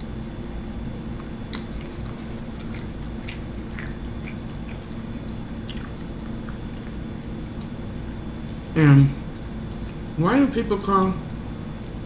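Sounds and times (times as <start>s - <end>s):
crunchy chewing: 0.0s - 8.3s
steady background hum: 0.0s - 12.0s.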